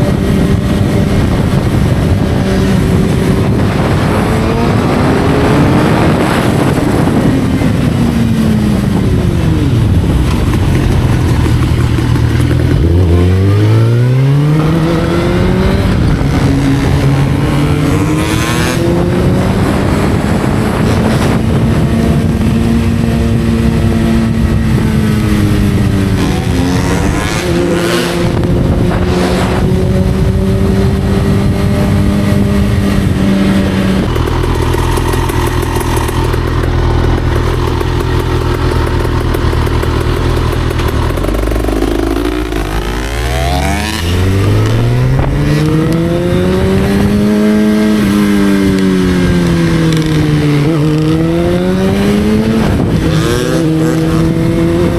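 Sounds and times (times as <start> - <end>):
motorcycle engine revving: 0.0 - 54.9
road and wind noise: 0.0 - 54.9.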